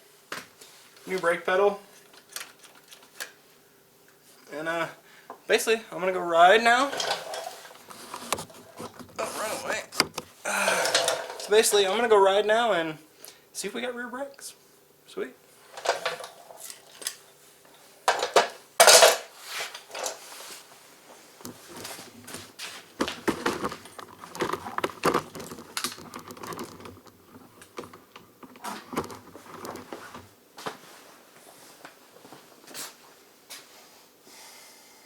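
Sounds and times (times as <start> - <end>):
metal tools clinking and clattering: 6.8 - 7.8, 10.7 - 11.6, 15.8 - 17.2, 18.1 - 19.3.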